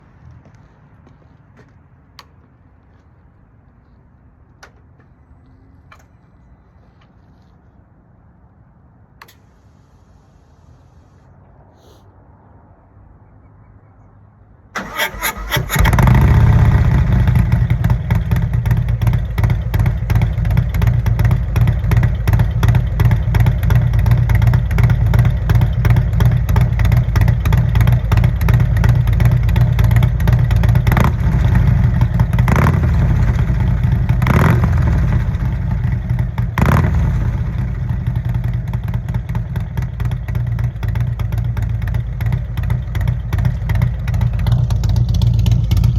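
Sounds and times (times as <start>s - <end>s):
electric starter cranking: 14.8s - 16.2s
motorcycle engine lopey idle: 14.8s - 45.9s.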